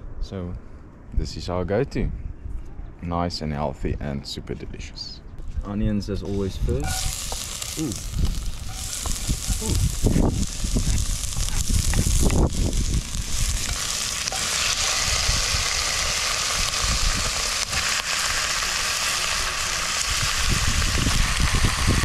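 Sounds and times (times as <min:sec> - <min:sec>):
onions and chicken sizzling in pot: 0:06.3 - 0:22.0.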